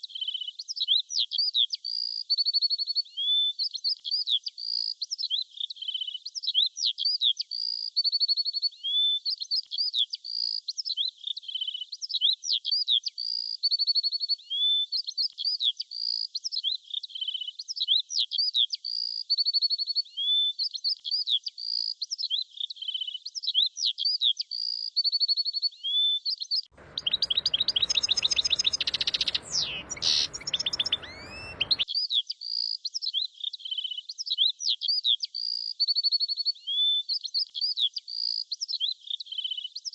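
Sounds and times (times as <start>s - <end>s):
background hiss: 26.8s - 31.8s
small birds chirping: 26.8s - 31.8s.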